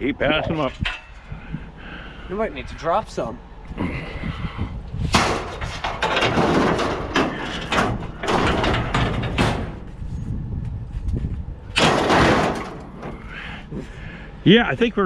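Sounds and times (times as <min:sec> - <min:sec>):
scrap metal scraping and clattering: 0:05.1 - 0:10.3, 0:11.7 - 0:14.0.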